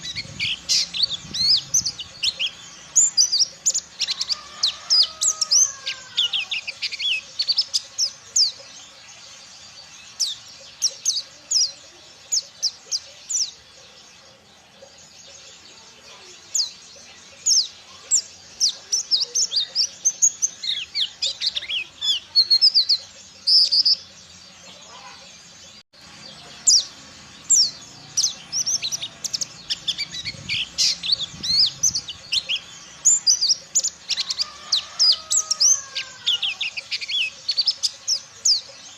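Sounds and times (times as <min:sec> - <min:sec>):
bird chattering song: 0:00.0 - 0:38.9.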